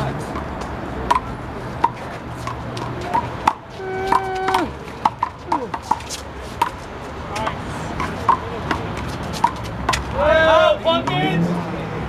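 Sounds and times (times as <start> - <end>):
person calling out: 3.8 - 4.8.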